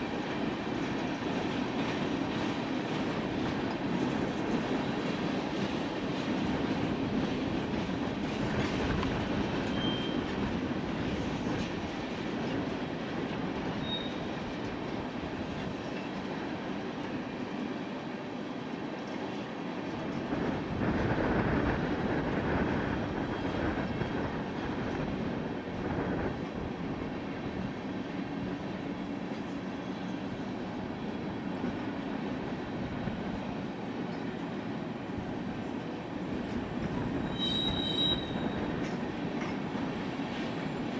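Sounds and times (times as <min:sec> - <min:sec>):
train wheels clattering on rails: 0:00.0 - 0:40.9
high wheel squeals: 0:09.7 - 0:10.3, 0:13.8 - 0:14.3, 0:37.2 - 0:38.8.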